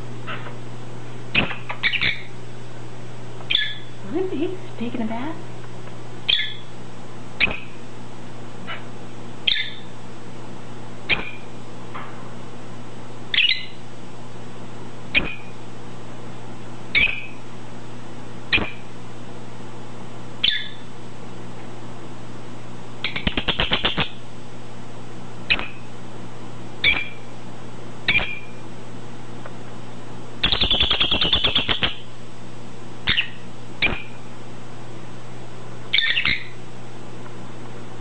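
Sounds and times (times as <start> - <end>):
steady low hum: 0.0 - 38.0
parrot beeping calls: 1.3 - 2.3, 3.5 - 4.0, 6.3 - 6.7, 7.4 - 7.7, 9.4 - 9.9, 11.1 - 11.4, 13.3 - 13.8, 15.1 - 15.5, 16.9 - 17.4, 20.4 - 20.8, 23.0 - 24.2, 26.8 - 27.2, 28.1 - 28.5, 30.4 - 32.0, 33.1 - 34.2, 35.9 - 36.6
parrot clicking chatter: 23.1 - 24.2, 30.4 - 32.0.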